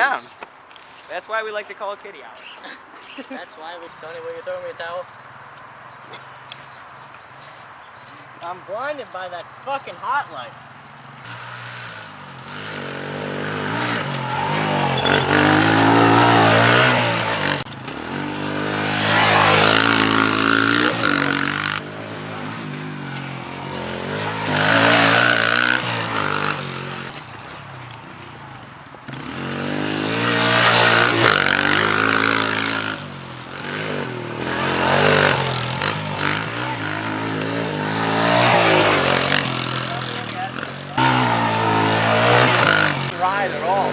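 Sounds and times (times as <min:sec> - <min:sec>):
motorcycle engine revving: 0:11.1 - 0:27.2, 0:29.0 - 0:43.9.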